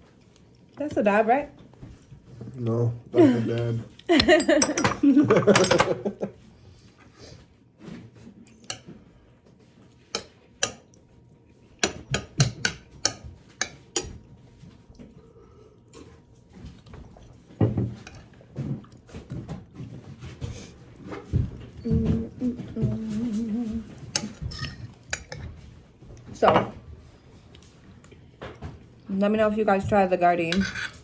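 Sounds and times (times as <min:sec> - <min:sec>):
cutlery clinking on a plate: 0:10.1 - 0:10.9, 0:24.1 - 0:25.5.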